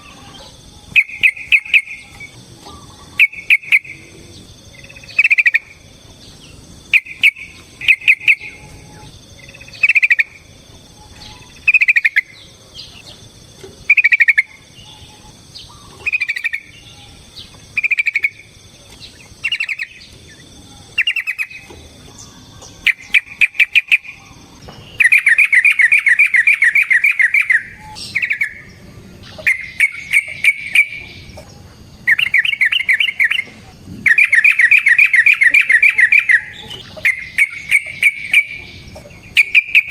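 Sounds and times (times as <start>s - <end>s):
bird calling bubbly phrases: 6.9s - 10.4s, 11.3s - 13.1s, 13.8s - 16.8s, 17.8s - 18.5s, 32.0s - 39.9s.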